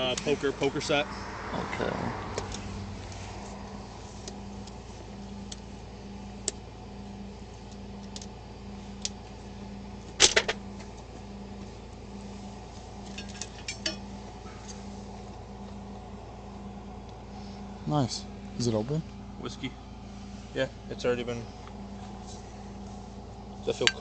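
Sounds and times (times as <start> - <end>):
steady low hum: 0.0 - 24.0
clicks and rattles of objects handled: 13.0 - 15.8.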